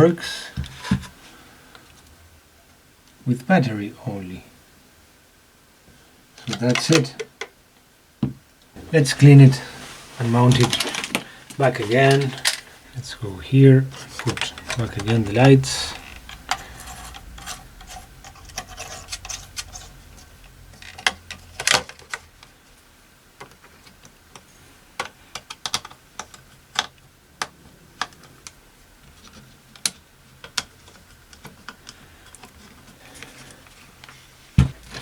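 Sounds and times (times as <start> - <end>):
small parts clicking and tapping: 10.5 - 12.7, 23.4 - 28.6, 29.2 - 33.3.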